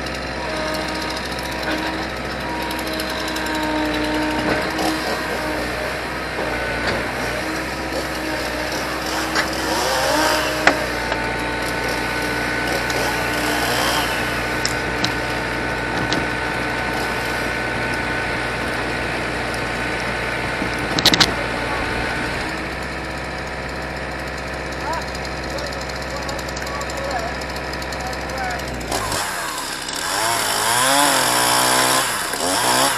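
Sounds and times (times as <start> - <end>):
excavator engine running: 0.0 - 32.9.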